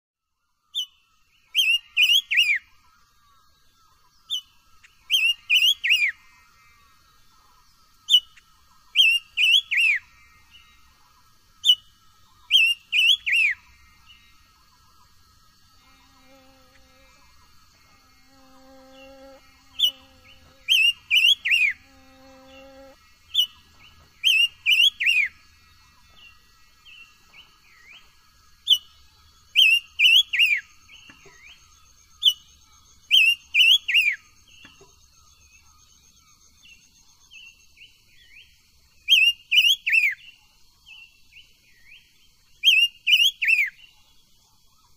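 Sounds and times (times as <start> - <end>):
faint high buzz: 0.4 - 43.1
songbird whistling phrase: 12.4 - 13.6.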